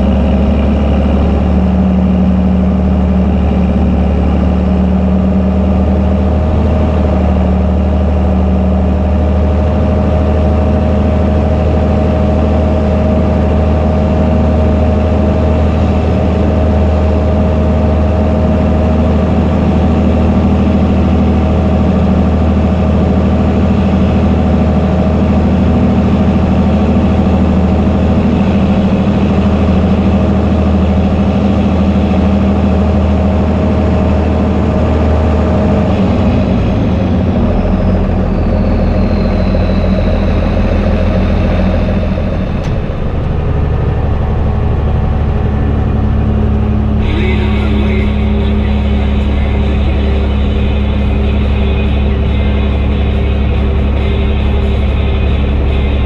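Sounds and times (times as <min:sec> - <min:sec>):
tractor diesel engine drone: 0:00.0 - 0:56.0
thin steady whine: 0:37.2 - 0:56.0.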